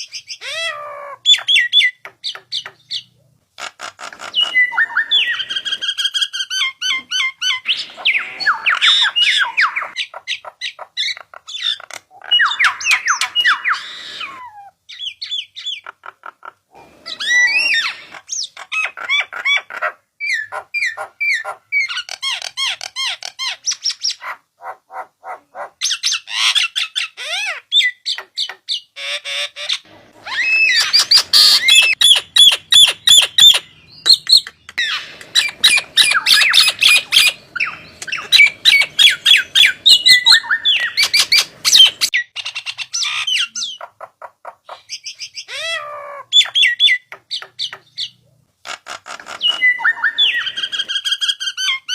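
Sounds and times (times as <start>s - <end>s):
starling song: 29.8s - 42.1s.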